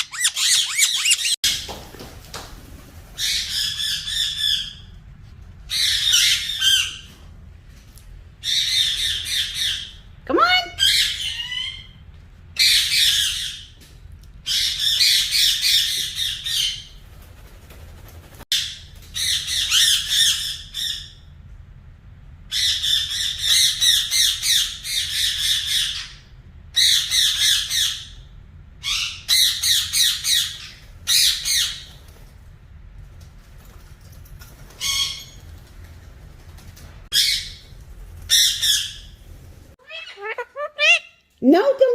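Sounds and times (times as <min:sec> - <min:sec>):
parrot squawking: 0:00.0 - 0:01.4, 0:05.7 - 0:07.1, 0:10.6 - 0:12.0, 0:39.8 - 0:41.3.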